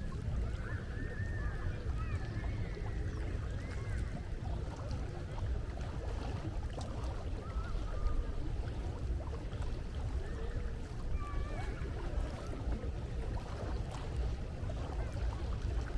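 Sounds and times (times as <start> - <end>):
gulls calling: 0.0 - 5.9, 7.1 - 13.2
low rumble of sea: 0.0 - 15.9.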